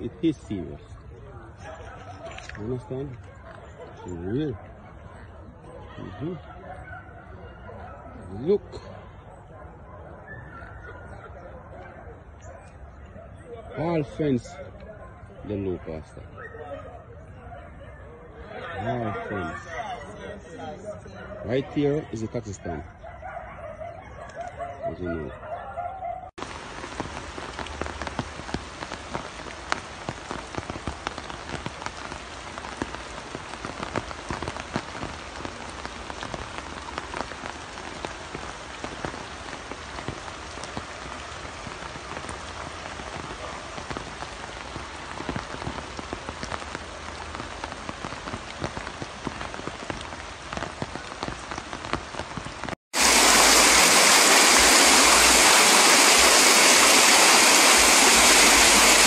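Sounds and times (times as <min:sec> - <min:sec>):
rain on a hard surface: 0:00.0 - 0:16.3, 0:26.3 - 0:59.0
floodwater rushing: 0:26.4 - 0:59.0.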